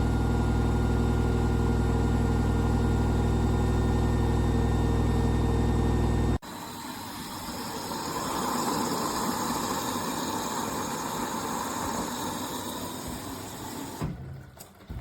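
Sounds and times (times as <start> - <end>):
washing machine drum whirring: 0.0 - 15.0.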